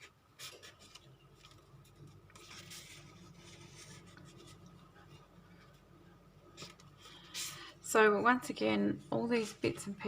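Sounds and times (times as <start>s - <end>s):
paper rustling and scraping: 0.0s - 5.9s, 6.5s - 7.7s, 9.2s - 10.0s.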